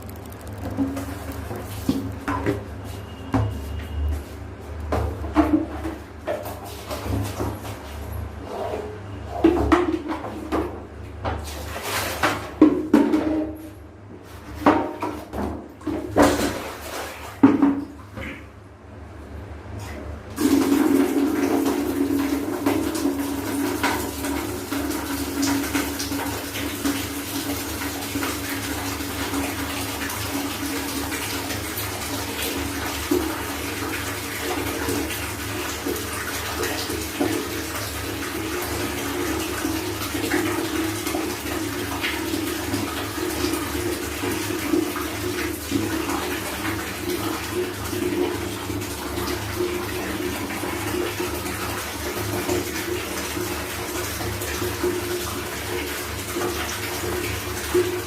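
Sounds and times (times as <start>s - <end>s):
small clicks and knocks: 0.0s - 2.6s
tap water running into container: 0.0s - 3.7s, 4.7s - 8.0s, 14.5s - 18.5s, 20.3s - 58.0s.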